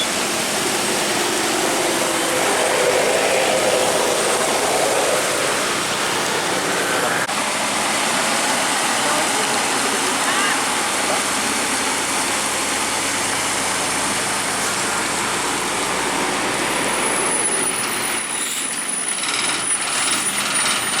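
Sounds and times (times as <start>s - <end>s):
thin high whine: 0.0s - 7.3s
heavy vehicle engine running: 0.0s - 21.0s
road-side noise: 0.0s - 21.0s.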